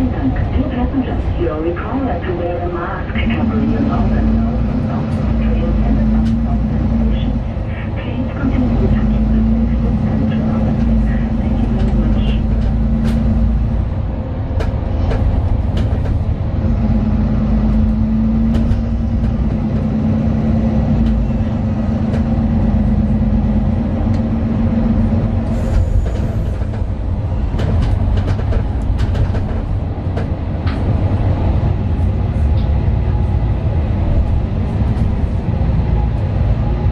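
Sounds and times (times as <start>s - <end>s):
bus diesel engine rumble: 0.0s - 36.9s
interior clicks and rattles: 8.9s - 17.0s, 17.6s - 31.6s.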